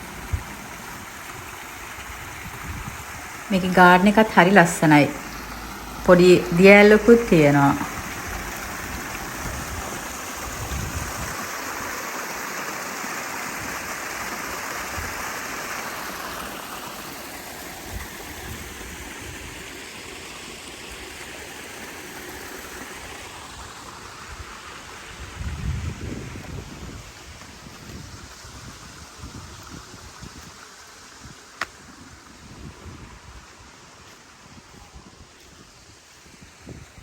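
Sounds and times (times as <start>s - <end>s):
wind buffeting microphone: 0.0s - 6.5s, 7.5s - 11.5s, 24.2s - 30.6s, 31.2s - 33.8s
small waterfall splashing: 0.0s - 37.0s.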